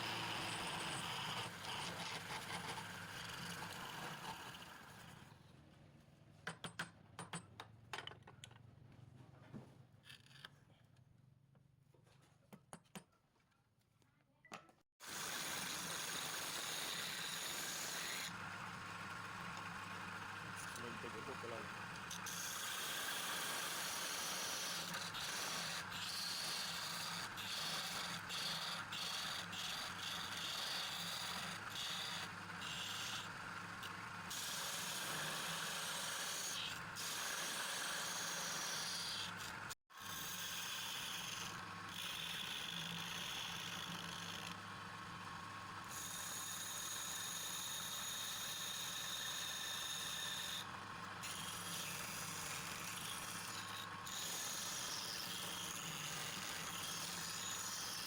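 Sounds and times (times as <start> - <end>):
motor-driven tool running: 15.0 - 58.0.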